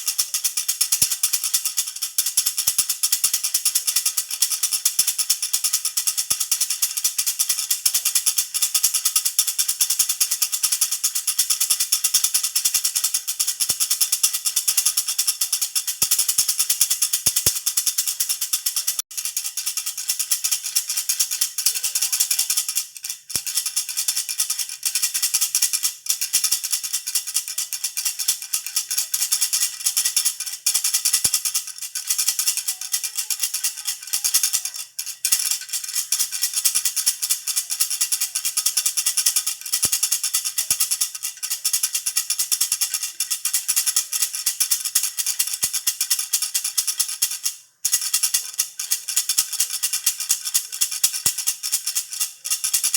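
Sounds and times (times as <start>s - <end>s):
baby rattle shaken: 0.0s - 52.9s.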